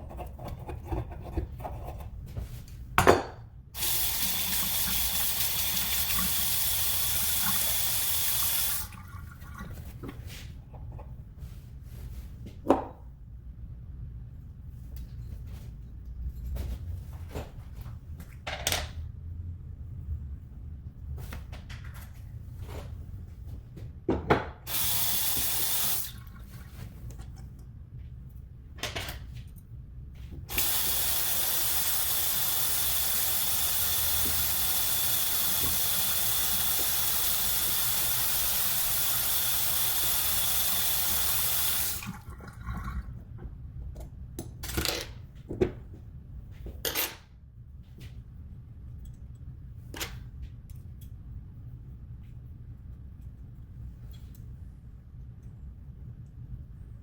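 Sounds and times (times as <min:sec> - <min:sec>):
faucet water running into sink: 0:03.8 - 0:09.9, 0:24.7 - 0:26.6, 0:30.5 - 0:43.2.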